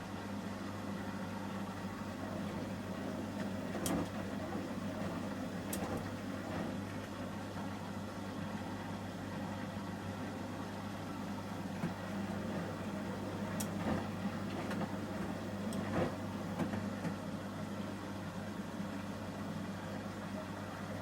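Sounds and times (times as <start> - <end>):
washing machine motor hum: 0.0 - 21.0
tumbling load clicks and knocks: 11.8 - 17.2.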